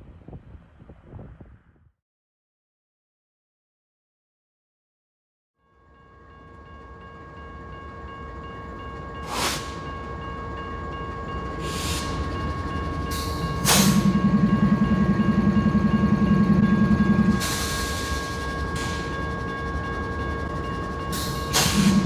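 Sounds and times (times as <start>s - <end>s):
train rumbling: 6.2s - 22.0s
short hissing bursts: 9.3s - 9.8s.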